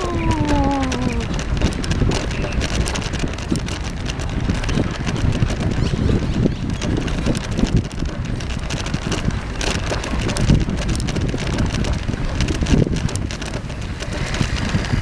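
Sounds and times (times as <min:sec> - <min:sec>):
person saying oh: 0:00.0 - 0:01.3
bicycle rolling along path: 0:00.0 - 0:15.0
small rattles and crunches: 0:00.0 - 0:15.0
wind buffeting microphone: 0:00.0 - 0:15.0.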